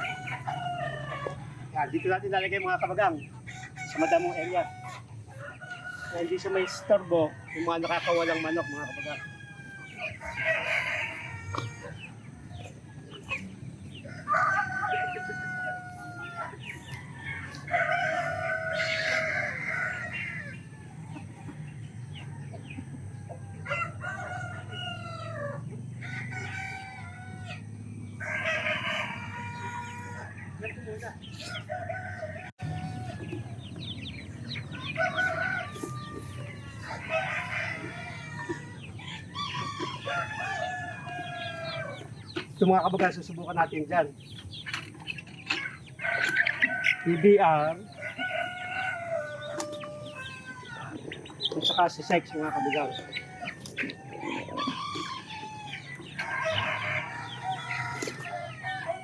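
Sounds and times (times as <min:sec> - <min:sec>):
rooster crowing: 0:00.0 - 0:01.6, 0:03.5 - 0:12.1, 0:14.0 - 0:21.2, 0:23.6 - 0:30.4, 0:34.7 - 0:42.1, 0:46.0 - 0:51.1, 0:51.8 - 0:59.0
chickens clucking: 0:00.0 - 0:59.0.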